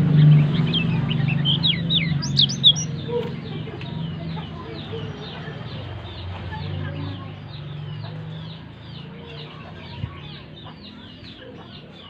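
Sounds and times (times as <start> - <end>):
bird singing high falling notes: 0.0 - 3.4.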